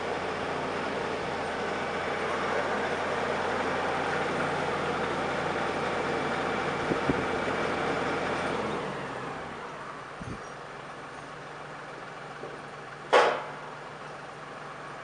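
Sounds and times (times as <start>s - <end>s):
machine running steadily: 0.0s - 15.0s
brief knocks: 12.4s - 13.5s.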